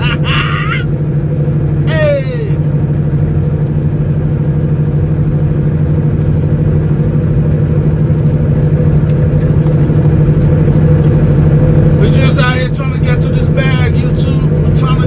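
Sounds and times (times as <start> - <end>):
diesel truck engine droning: 0.0 - 15.0.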